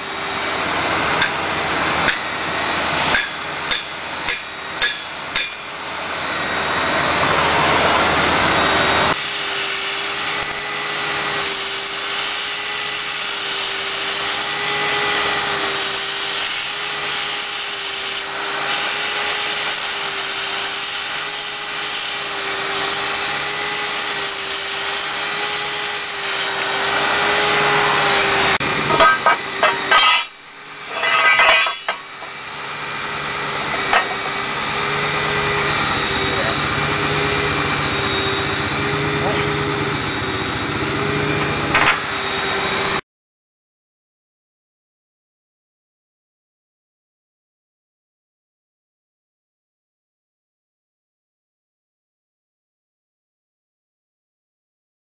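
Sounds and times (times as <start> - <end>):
machine drone with whine: 0.0 - 11.6, 26.4 - 43.0
hammer blows: 1.1 - 5.8.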